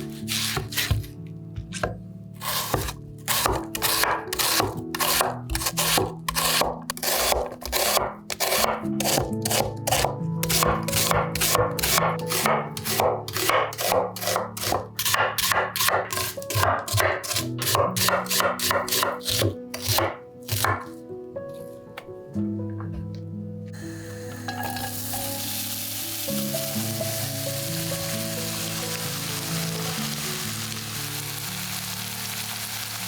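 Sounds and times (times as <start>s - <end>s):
potato scraping strokes: 0.0s - 1.2s, 2.4s - 21.0s
background music: 0.0s - 33.0s.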